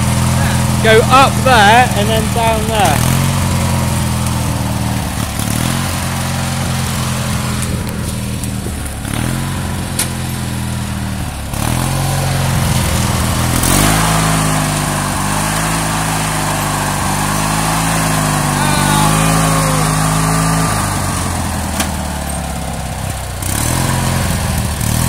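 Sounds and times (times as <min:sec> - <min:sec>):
garden tractor engine running: 0:00.0 - 0:25.0.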